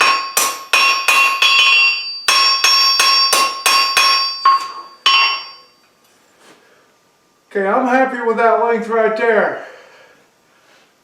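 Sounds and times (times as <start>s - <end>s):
hammer striking steel on anvil: 0.0s - 5.8s.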